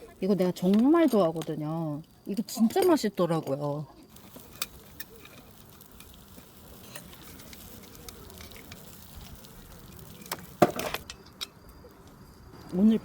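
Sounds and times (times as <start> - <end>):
fish sizzling on charcoal fire: 0.0 - 13.0.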